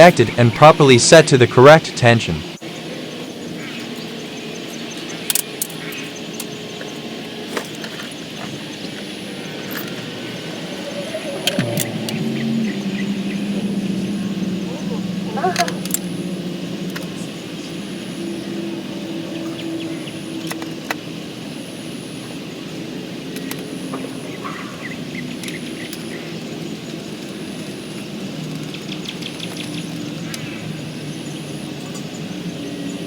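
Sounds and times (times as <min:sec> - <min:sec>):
steady mechanical hum: 0:00.0 - 0:33.0
held low tones: 0:08.6 - 0:20.8
faint high chirp: 0:08.8 - 0:16.0.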